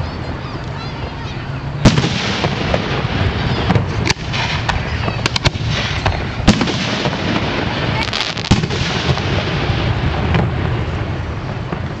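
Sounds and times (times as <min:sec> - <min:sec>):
fireworks bursting: 0:01.8 - 0:12.0.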